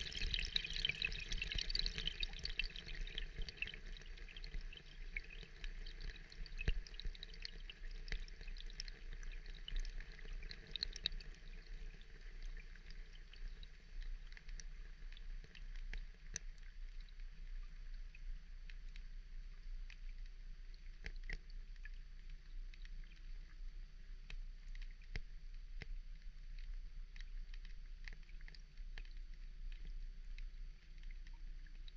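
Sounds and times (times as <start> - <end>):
steady rain patter: 0.0 - 14.3.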